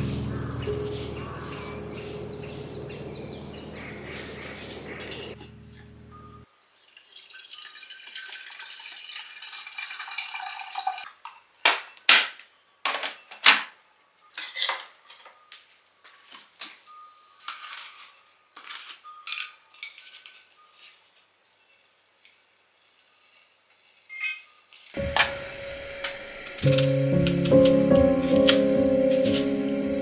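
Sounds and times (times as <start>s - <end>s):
rustling hiss: 0.0s - 6.3s, 25.0s - 30.0s.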